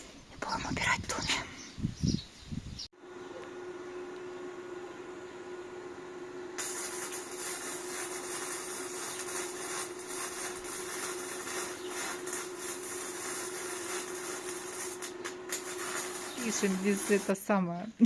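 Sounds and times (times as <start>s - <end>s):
mid-pitched hum: 0.0s - 18.0s
steady hiss: 6.6s - 17.5s.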